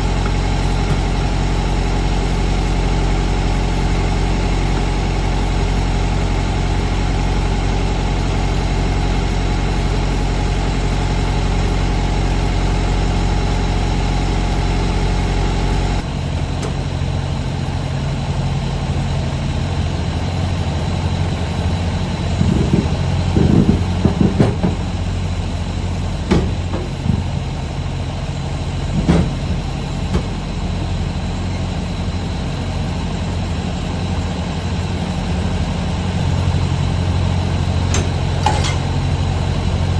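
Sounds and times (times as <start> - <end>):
diesel truck engine running: 0.0 - 39.9
short knocks and rattles: 22.3 - 25.0, 28.9 - 30.4.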